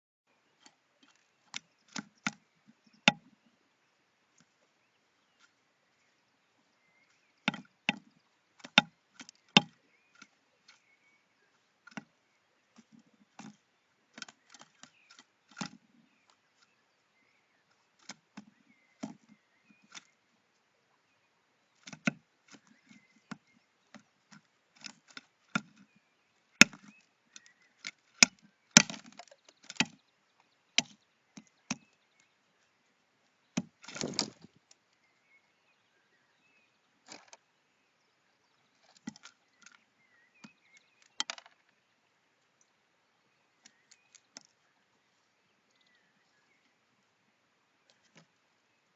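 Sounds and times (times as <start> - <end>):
bird pecking on wood: 0.6 - 3.3, 7.2 - 16.7, 18.0 - 20.2, 21.8 - 26.0, 26.6 - 30.1, 30.8 - 32.2, 33.6 - 34.8.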